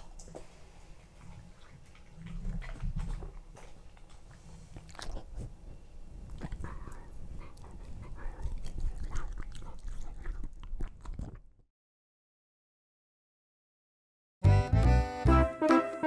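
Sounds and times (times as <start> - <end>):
puppy biting and chewing: 0.0 - 11.6.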